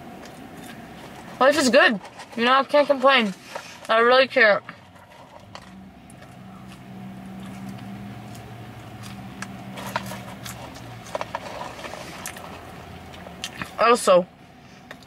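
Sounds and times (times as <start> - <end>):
chewing french fries: 0.0 - 3.9, 4.6 - 13.8, 14.8 - 15.0
low engine hum: 0.0 - 15.0
paper cup crackles: 9.5 - 13.7.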